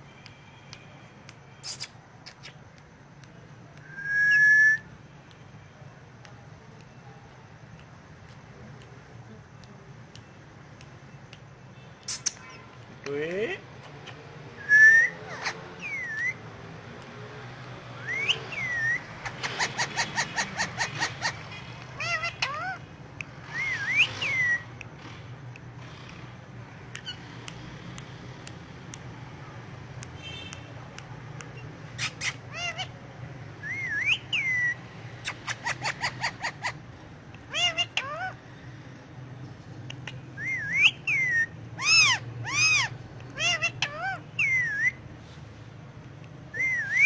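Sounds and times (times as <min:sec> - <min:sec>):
parakeet clicking chirps: 0:00.1 - 0:04.0, 0:09.6 - 0:38.4, 0:39.8 - 0:45.0
parakeet whistling: 0:03.8 - 0:04.9, 0:14.6 - 0:16.4, 0:18.0 - 0:22.8, 0:23.4 - 0:24.7, 0:33.6 - 0:36.8, 0:40.3 - 0:45.0, 0:46.5 - 0:47.0
parrot calling: 0:13.7 - 0:16.4, 0:18.0 - 0:24.7, 0:31.6 - 0:33.0, 0:33.6 - 0:38.4, 0:40.0 - 0:45.0, 0:46.5 - 0:47.0.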